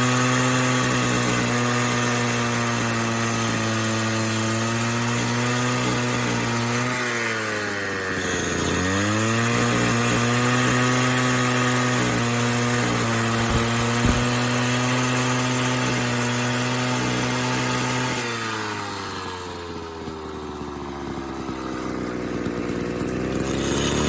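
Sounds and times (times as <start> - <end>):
cut-off saw engine running: 12.1 - 14.6
short knocks: 13.0 - 14.6.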